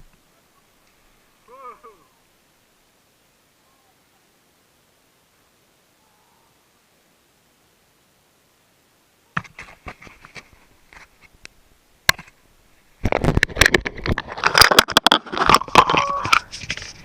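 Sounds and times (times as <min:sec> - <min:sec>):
mountain bike rattling on rough trail: 0:13.0 - 0:17.0.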